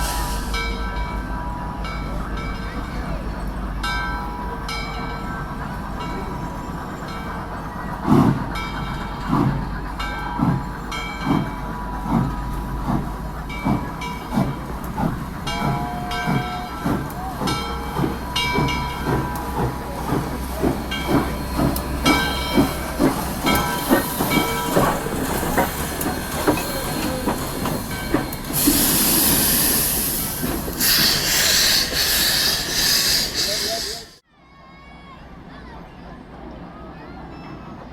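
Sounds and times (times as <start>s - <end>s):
steam locomotive chuffing: 0.0s - 34.2s
steam hiss bursts: 21.1s - 34.2s.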